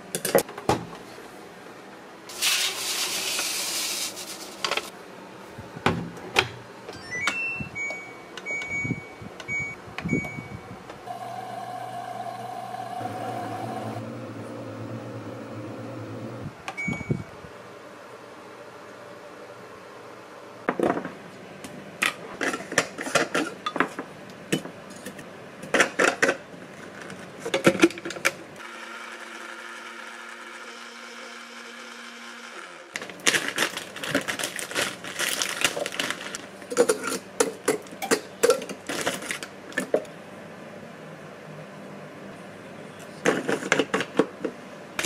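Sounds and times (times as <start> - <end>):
small motor humming: 11.1 - 16.4
utensils and cookware clatter: 22.4 - 24.0, 33.3 - 40.0.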